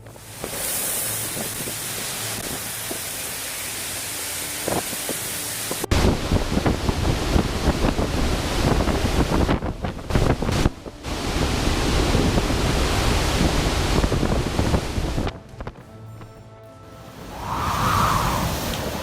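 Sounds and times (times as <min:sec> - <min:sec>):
strong wind buffeting microphone: 0:05.9 - 0:15.8, 0:17.2 - 0:19.0.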